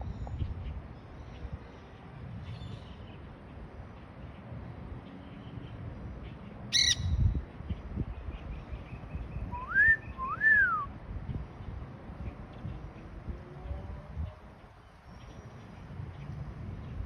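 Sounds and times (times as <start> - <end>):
parrot squawk: 6.7 - 7.2.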